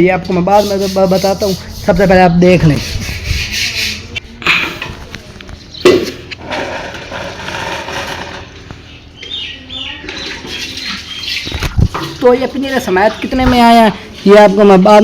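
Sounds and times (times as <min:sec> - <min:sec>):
parrots chirping: 0:08.8 - 0:11.7.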